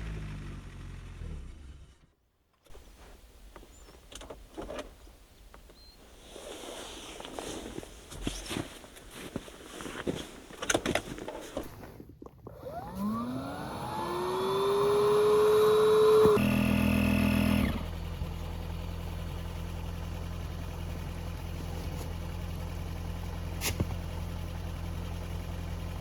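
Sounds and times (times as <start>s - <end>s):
motor whine rising in pitch: 12.5s - 18.1s.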